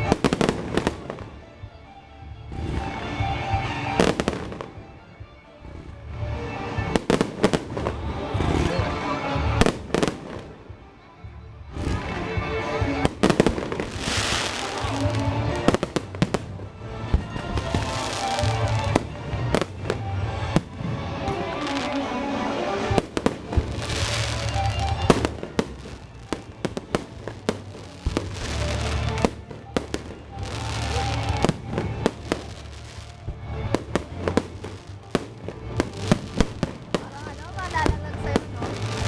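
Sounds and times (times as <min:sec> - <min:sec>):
fireworks bangs and crackling: 0:00.0 - 0:01.6, 0:02.4 - 0:10.8, 0:11.7 - 0:39.0
music playing: 0:00.0 - 0:39.0.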